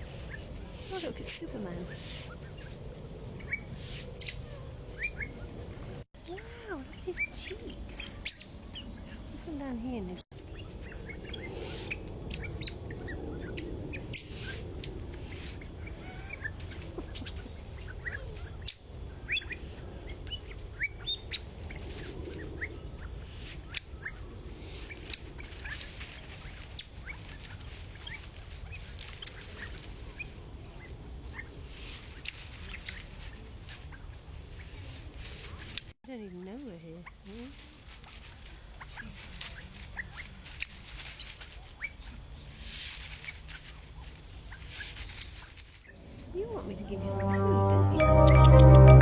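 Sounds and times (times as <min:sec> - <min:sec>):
birds chirping: 0:00.0 - 0:05.6
low background noise: 0:00.0 - 0:49.0.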